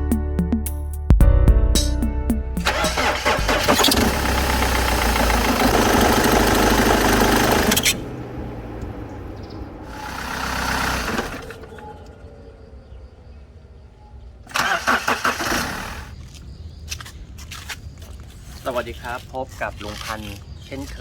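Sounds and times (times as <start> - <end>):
diesel engine starting and running: 2.6 - 16.2.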